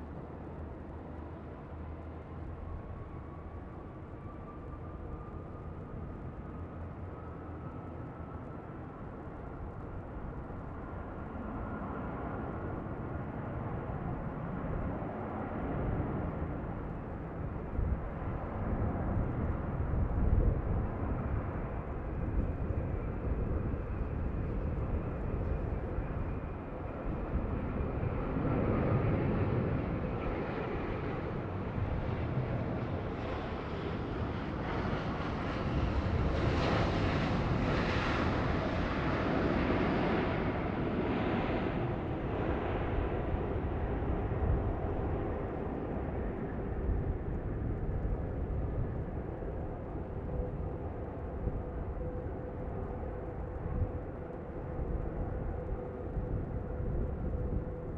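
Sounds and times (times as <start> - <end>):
jet engines roaring: 22.1 - 57.9.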